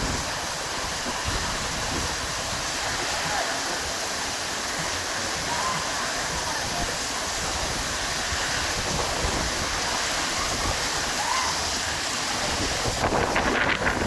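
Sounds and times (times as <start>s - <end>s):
heavy storm rain: 0.0s - 14.0s.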